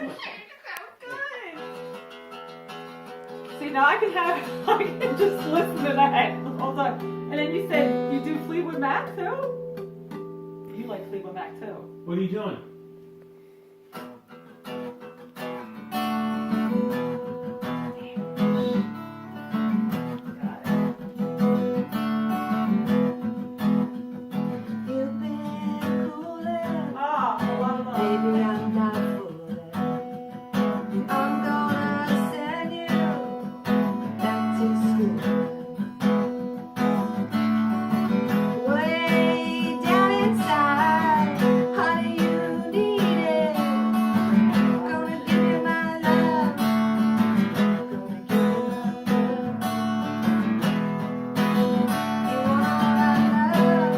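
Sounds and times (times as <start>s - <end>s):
acoustic guitar strumming: 0.0s - 53.9s
woman singing: 3.5s - 9.6s, 24.5s - 36.5s, 38.3s - 50.0s, 51.9s - 53.9s.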